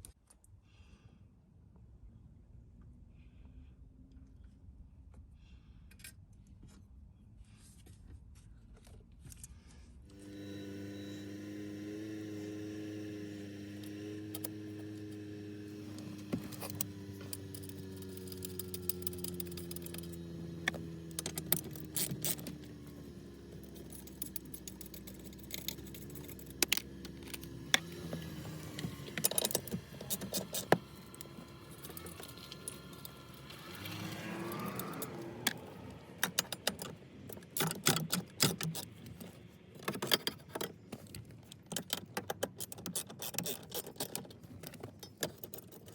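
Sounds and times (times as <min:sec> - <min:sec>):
metal tools clinking: 0:12.7 - 0:35.6.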